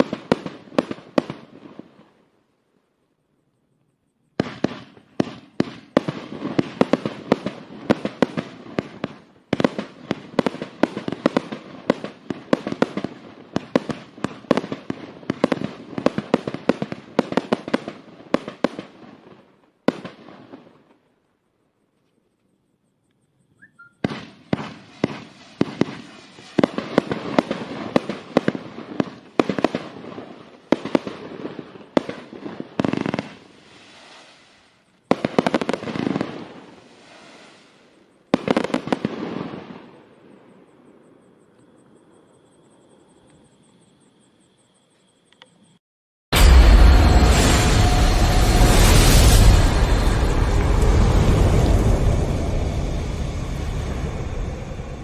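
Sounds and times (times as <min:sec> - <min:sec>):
firework volley of shots: 0:00.0 - 0:02.1, 0:04.4 - 0:20.9, 0:24.0 - 0:40.4, 0:46.4 - 0:55.0.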